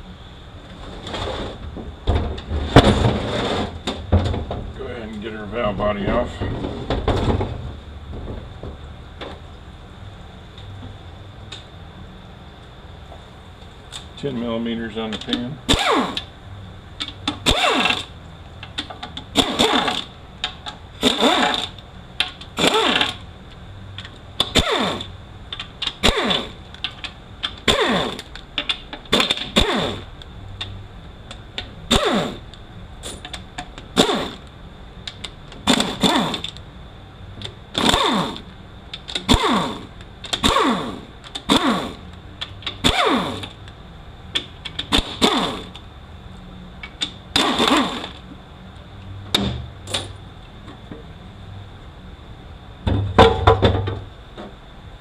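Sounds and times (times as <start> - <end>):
power ratchet bursts: 15.7 - 16.3, 17.3 - 18.1, 19.3 - 20.1, 21.0 - 21.8, 22.6 - 23.2, 24.5 - 25.1, 26.0 - 26.6, 27.6 - 28.3, 29.1 - 30.1, 31.9 - 32.5, 33.9 - 34.4, 35.6 - 36.6, 37.7 - 38.5, 39.2 - 42.1, 42.8 - 43.6, 44.9 - 45.8, 47.3 - 48.2.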